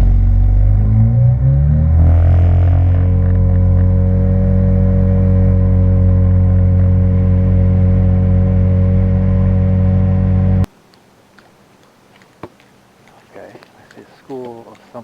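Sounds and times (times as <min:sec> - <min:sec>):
engine humming steadily: 0:00.0 - 0:10.7.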